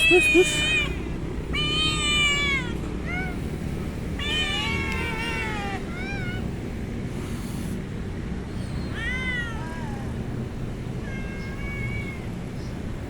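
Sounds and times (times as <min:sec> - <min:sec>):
cat meowing: 0:00.0 - 0:06.5, 0:08.8 - 0:10.2, 0:11.0 - 0:12.4.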